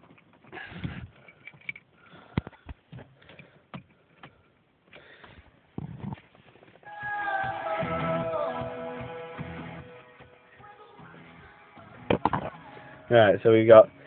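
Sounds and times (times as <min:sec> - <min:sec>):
car keys clicking and rattling: 0:01.1 - 0:02.0.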